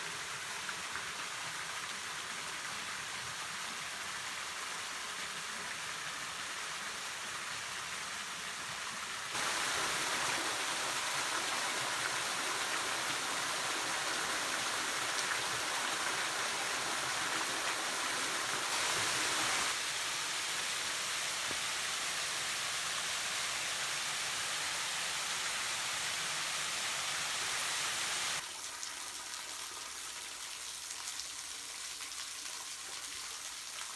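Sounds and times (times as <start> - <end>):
waterfall rushing: 9.4 - 23.7.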